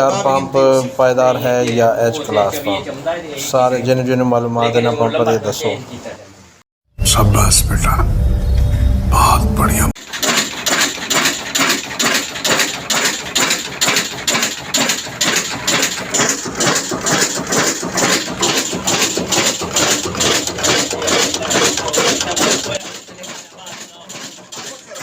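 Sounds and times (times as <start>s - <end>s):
diesel engine knocking rhythmically: 10.2s - 25.0s.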